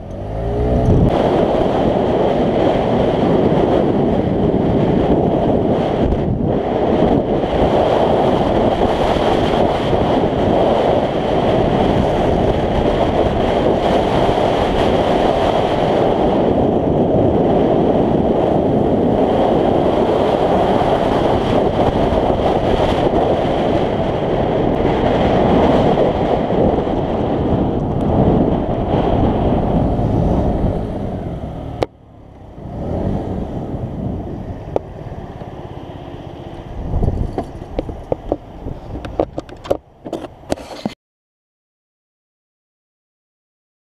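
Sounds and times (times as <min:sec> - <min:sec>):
quiet engine: 0:00.0 - 0:01.8, 0:27.8 - 0:40.6
wind buffeting microphone: 0:00.0 - 0:41.0.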